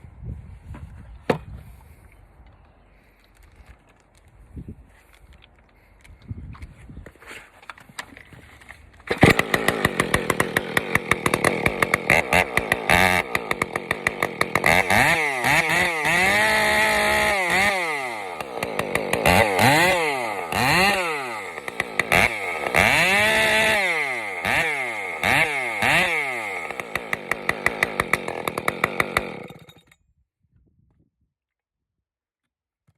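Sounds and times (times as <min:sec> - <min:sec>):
chainsaw revving: 0:09.1 - 0:29.9.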